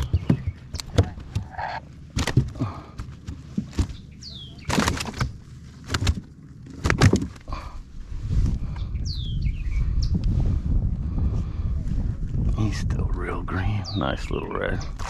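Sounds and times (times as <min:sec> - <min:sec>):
fish splashing and knocking hull: 0:00.0 - 0:07.7
low rumble: 0:00.0 - 0:15.0.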